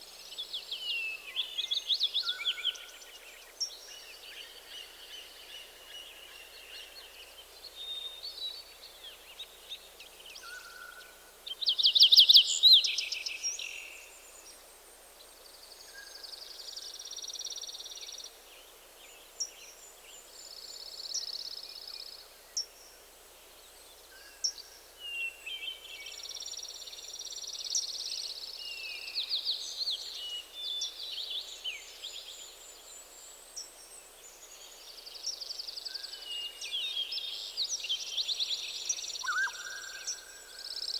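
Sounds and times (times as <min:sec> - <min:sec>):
soft steady hiss: 0:00.0 - 0:40.9
songbirds singing: 0:23.4 - 0:40.9.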